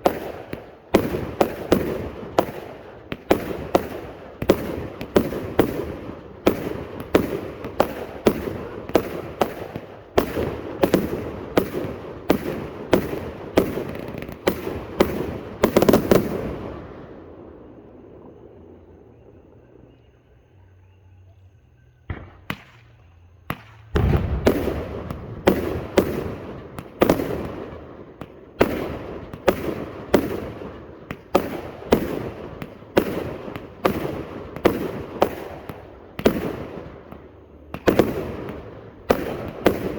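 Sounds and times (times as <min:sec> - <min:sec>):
firework cake bangs: 0:22.1 - 0:39.9.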